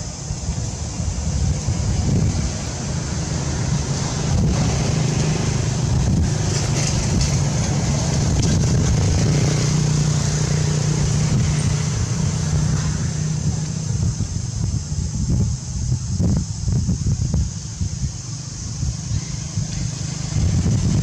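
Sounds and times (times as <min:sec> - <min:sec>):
high hiss: 0:00.0 - 0:21.0
vehicle engine running: 0:00.0 - 0:21.0.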